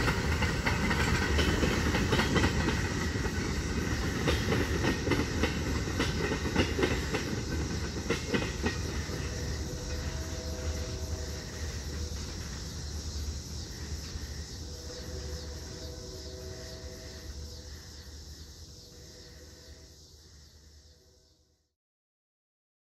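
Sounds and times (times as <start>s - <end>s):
train wheels clicking over rail joints: 0.0s - 18.5s
train rumble: 0.0s - 21.5s.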